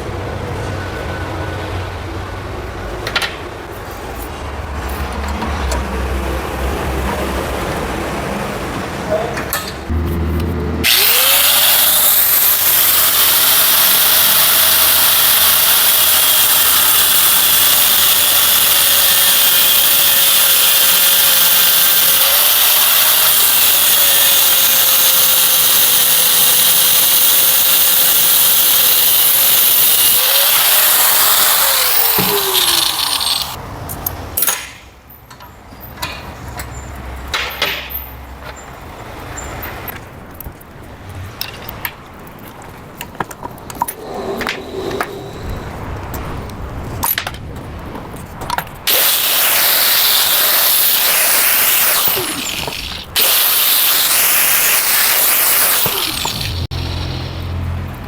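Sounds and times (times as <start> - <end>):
power tool motor whining: 10.8 - 33.6, 48.9 - 57.5
knocks and clatter of parts: 33.9 - 38.7.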